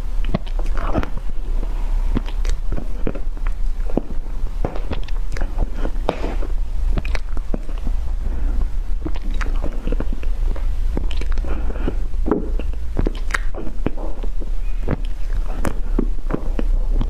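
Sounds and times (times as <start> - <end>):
biting and chewing: 0.2 - 17.0.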